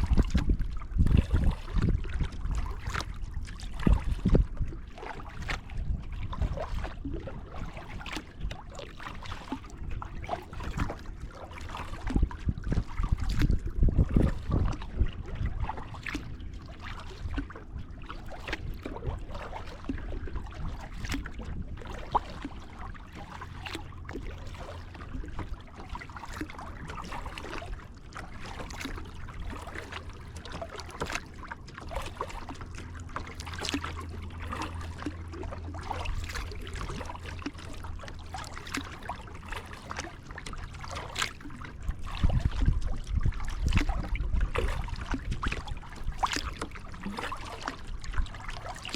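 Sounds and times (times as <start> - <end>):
kayak paddle splashing in water: 0.0 - 48.9
water dripping off paddle: 22.2 - 48.9.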